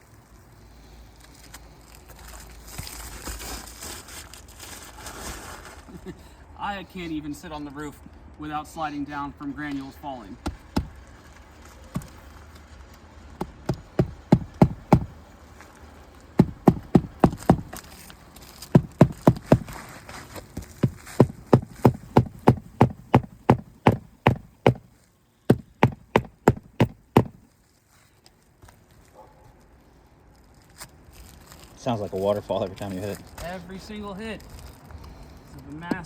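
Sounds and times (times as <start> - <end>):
hammer striking shingle roof: 10.4 - 11.0, 12.0 - 12.2, 13.4 - 15.2, 16.4 - 17.8, 18.7 - 19.8, 20.6 - 24.9, 25.5 - 27.4.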